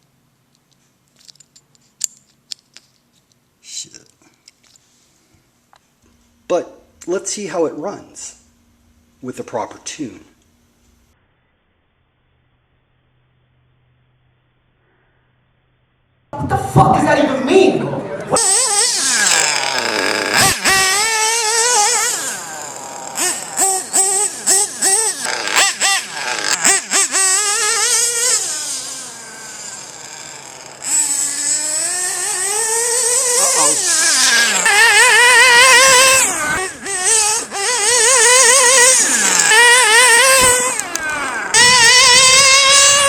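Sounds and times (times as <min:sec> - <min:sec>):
model truck engine revving: 0:18.2 - 0:43.0.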